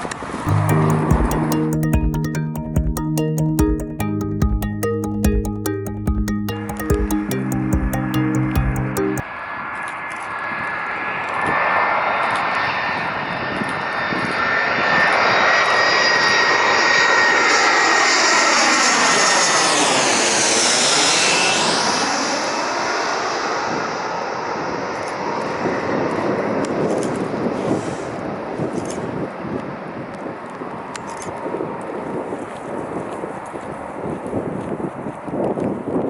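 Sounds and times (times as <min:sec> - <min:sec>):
jet aircraft passing: 0:09.3 - 0:26.6.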